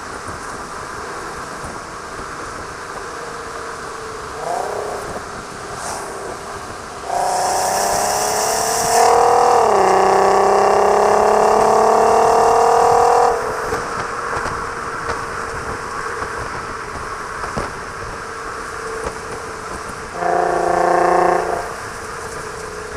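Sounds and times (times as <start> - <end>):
car engine accelerating: 1.2 - 22.9.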